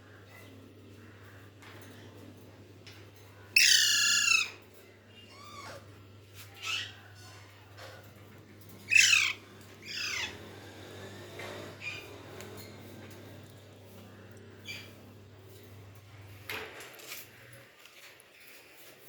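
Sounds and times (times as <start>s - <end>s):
parrot squawking: 3.6s - 4.6s, 6.5s - 7.0s, 8.8s - 10.5s.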